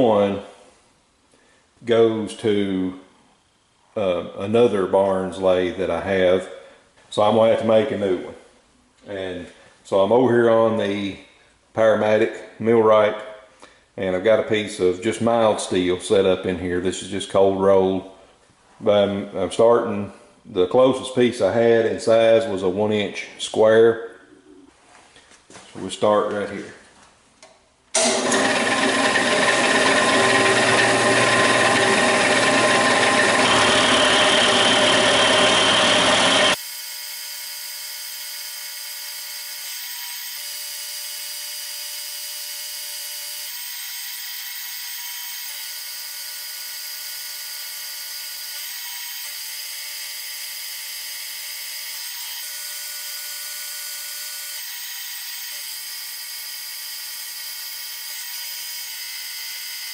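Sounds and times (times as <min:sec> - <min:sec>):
machine whine: 0:28.0 - 0:36.6
milling machine cutting steel: 0:28.0 - 0:36.6.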